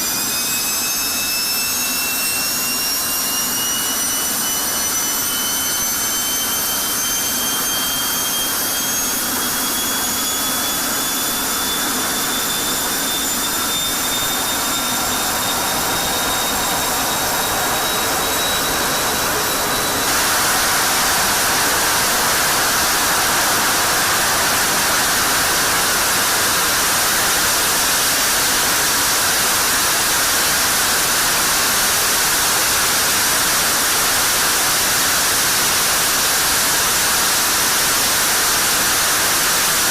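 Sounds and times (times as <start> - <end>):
jet turbine whine: 0.0 - 39.9.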